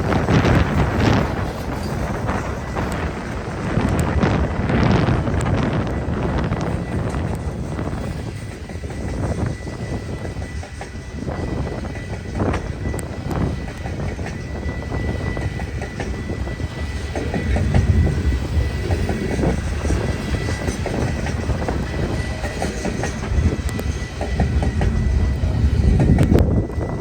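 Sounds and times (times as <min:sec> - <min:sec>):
train rumbling by: 0:00.0 - 0:27.0.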